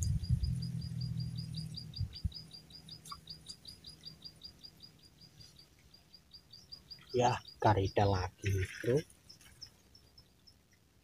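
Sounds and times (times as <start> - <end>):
low rumble: 0.0 - 2.6
small bird chirping rapidly: 0.0 - 11.0.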